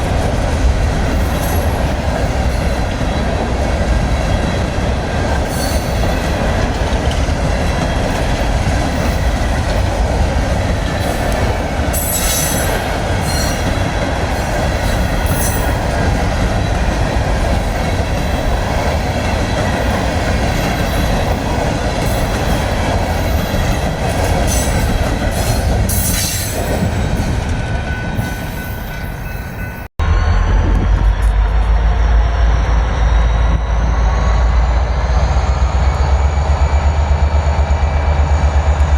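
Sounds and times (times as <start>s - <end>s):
train wheels rumbling on rails: 0.0s - 38.9s
train wheels squealing: 1.0s - 3.4s, 5.3s - 9.8s, 10.8s - 38.9s
deep heavy rumble: 30.0s - 38.9s.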